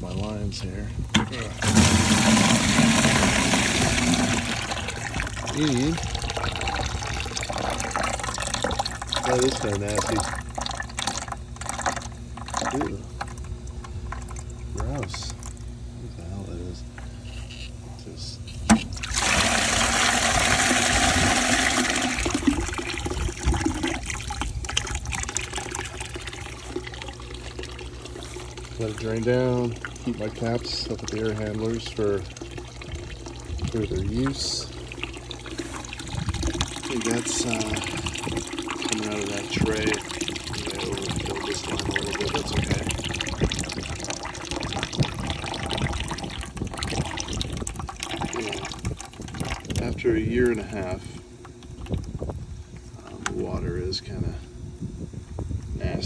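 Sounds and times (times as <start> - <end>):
water gushing into a bucket: 0.0 - 15.9, 18.7 - 54.4.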